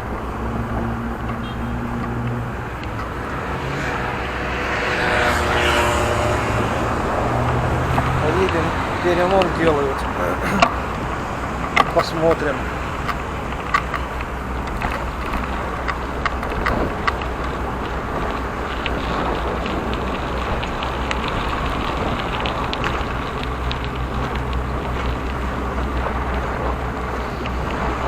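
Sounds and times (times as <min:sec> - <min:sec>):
wind rushing over microphone: 0:00.0 - 0:28.0
bicycle clicks and rattles: 0:11.5 - 0:28.0.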